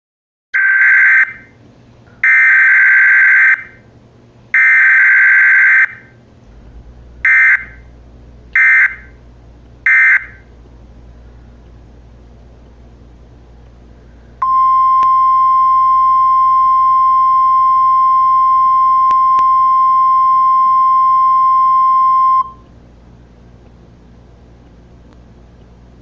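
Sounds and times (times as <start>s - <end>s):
harsh alert buzzer: 0.6s - 1.4s, 2.2s - 3.8s, 4.6s - 6.1s, 7.2s - 7.8s, 8.6s - 9.2s, 9.9s - 10.4s.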